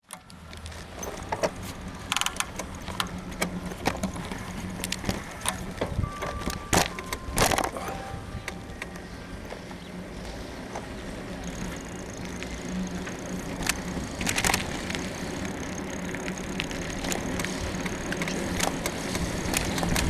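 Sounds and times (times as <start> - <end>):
bicycle frame creaking and clicking: 0.0 - 20.0
low steady hum: 0.2 - 20.0.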